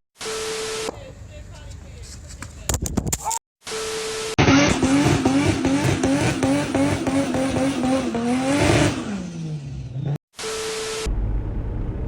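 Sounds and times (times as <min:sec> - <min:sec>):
car engine revving high: 0:04.4 - 0:12.0.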